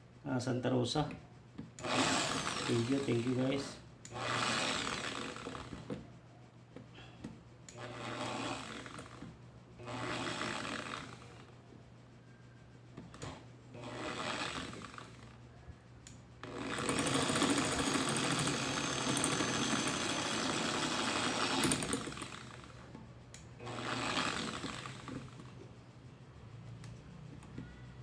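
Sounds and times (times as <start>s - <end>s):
drill press motor running: 1.8s - 6.0s, 7.7s - 11.5s, 13.1s - 15.4s, 16.4s - 23.0s, 23.6s - 25.6s.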